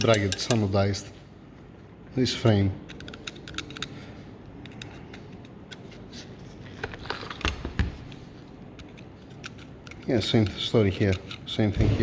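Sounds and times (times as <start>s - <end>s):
metal parts clicking and tapping: 0.0s - 0.8s, 2.9s - 6.2s, 8.1s - 12.0s.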